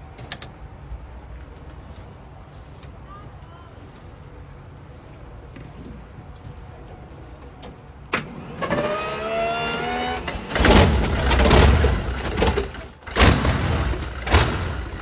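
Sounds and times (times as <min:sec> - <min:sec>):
car engine starting: 0:07.6 - 0:15.0.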